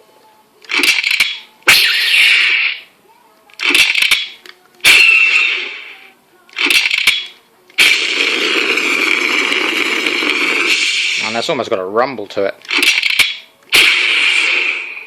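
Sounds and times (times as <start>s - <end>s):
toy blaster shots: 0.7s - 2.9s, 3.6s - 6.0s, 6.6s - 11.4s, 12.7s - 15.0s.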